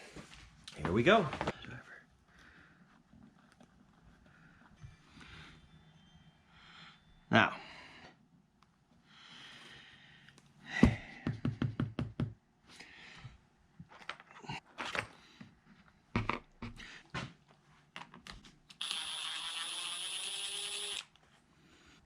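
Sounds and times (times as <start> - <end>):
small electric motor whining: 18.8 - 21.1.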